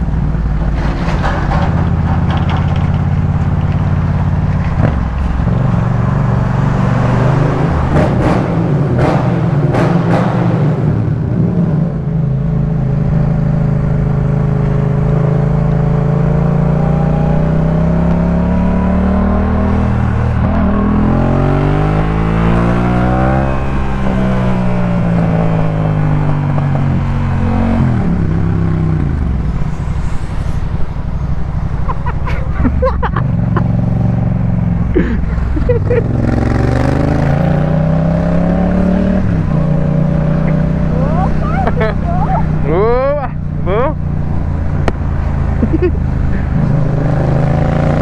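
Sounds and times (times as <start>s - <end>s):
motorcycle engine under load: 0.0s - 5.5s.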